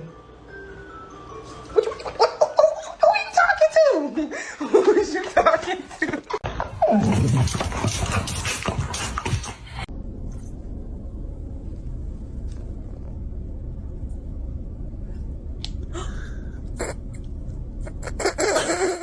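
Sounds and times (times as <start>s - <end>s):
low indoor room rumble: 6.4s - 19.0s.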